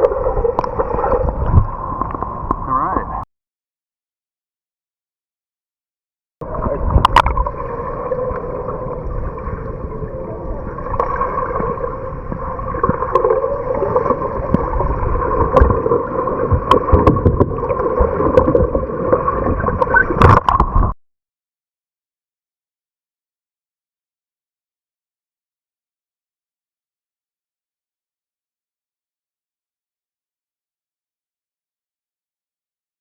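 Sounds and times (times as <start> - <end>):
water sloshing and splashing: 0.0 - 2.4, 10.7 - 21.0.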